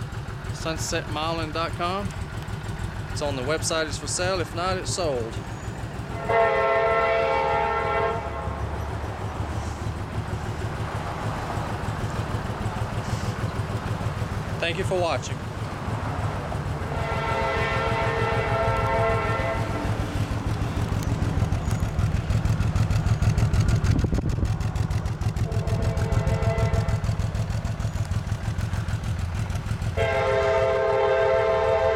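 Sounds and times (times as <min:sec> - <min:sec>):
low engine rumble: 0:00.0 - 0:31.9
train air horn: 0:06.1 - 0:08.8, 0:16.8 - 0:20.0, 0:25.4 - 0:27.3, 0:29.9 - 0:31.9.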